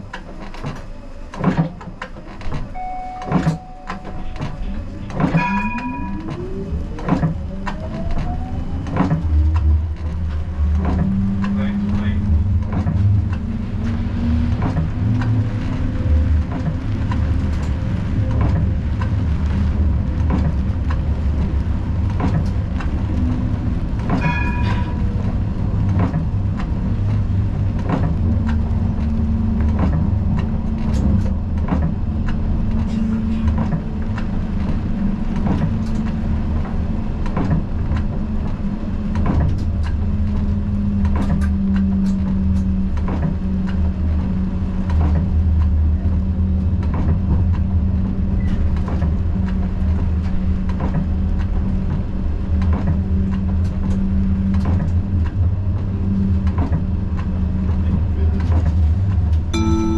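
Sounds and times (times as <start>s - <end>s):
tram motor hum: 0.0s - 59.9s
wheel-on-rail clicks and knocks: 0.1s - 59.5s
short pitched tone: 2.8s - 6.6s, 59.6s - 59.9s.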